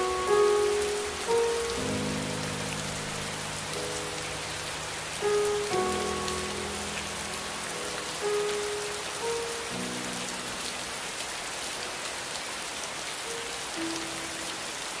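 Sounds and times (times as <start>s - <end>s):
slow ambient music: 0.0s - 15.0s
steady rain hiss: 0.0s - 15.0s.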